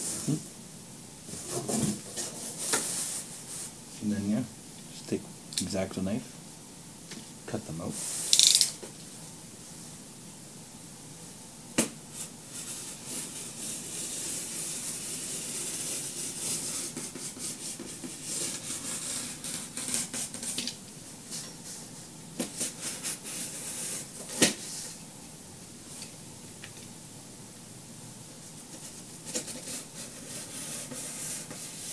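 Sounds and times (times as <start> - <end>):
craft knife cutting cardboard: 12.6 - 20.6.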